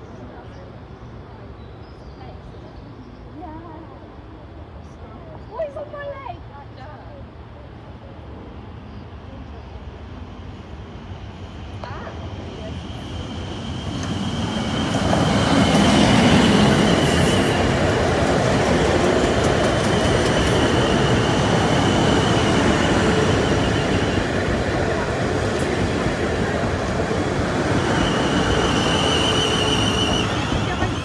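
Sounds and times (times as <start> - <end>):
train wheels rumbling on rails: 10.8 - 31.0.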